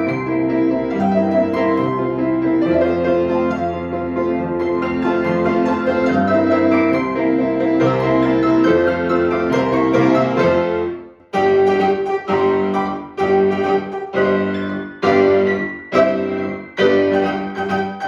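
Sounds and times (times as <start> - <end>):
piano duet: 0.0 - 18.0.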